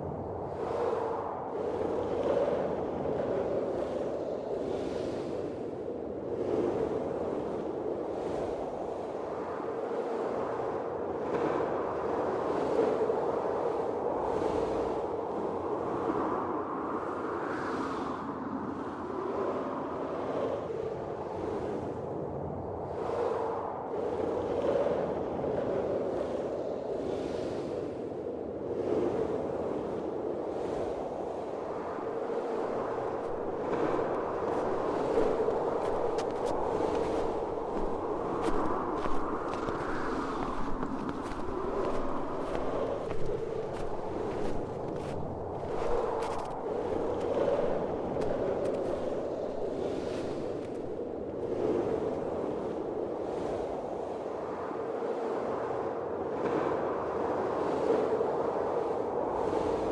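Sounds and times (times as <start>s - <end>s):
blizzard wind gusting: 0.0s - 59.9s.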